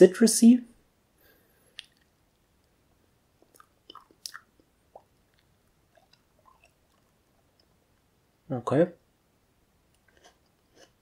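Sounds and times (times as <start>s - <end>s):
wet mouth clicks: 1.7s - 2.1s, 3.4s - 7.7s
chewing with soft crunches: 3.4s - 8.1s, 9.9s - 11.0s.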